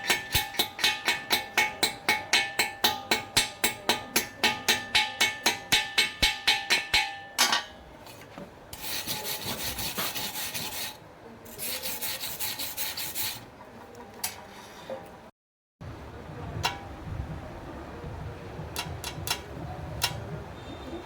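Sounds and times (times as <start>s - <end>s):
hammer tapping steel: 0.0s - 7.8s, 18.7s - 20.4s
rasping strokes on metal: 8.7s - 13.5s.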